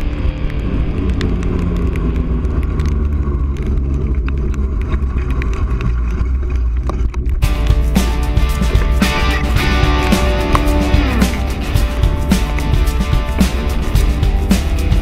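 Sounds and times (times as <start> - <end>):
sharp ticks: 0.0 - 15.0
street and wind rumble: 0.0 - 15.0
guitar music: 7.4 - 15.0.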